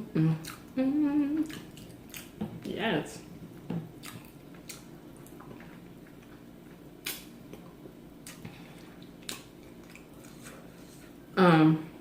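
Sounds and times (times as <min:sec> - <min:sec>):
low room hum: 0:00.0 - 0:12.0
person chewing: 0:00.4 - 0:00.8, 0:01.4 - 0:02.4, 0:03.9 - 0:11.2.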